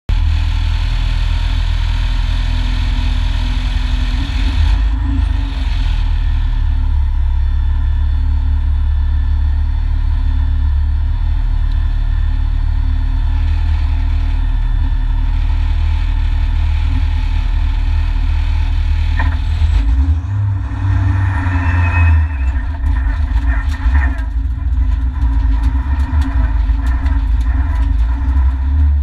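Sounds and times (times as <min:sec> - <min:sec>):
car engine idling: 0:00.1 - 0:29.0.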